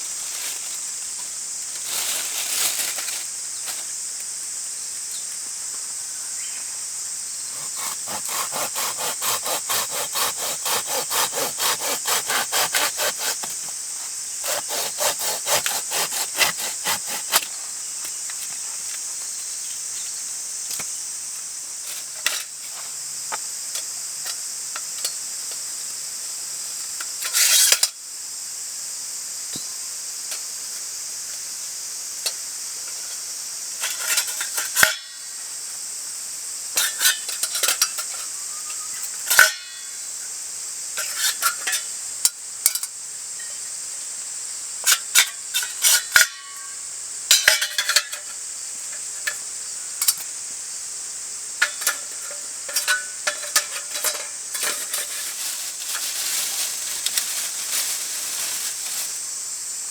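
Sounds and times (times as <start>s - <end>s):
insects droning: 0.0s - 59.9s
hand saw cutting wood: 7.5s - 13.8s, 14.4s - 17.6s
knocks and scrapes: 51.6s - 58.9s.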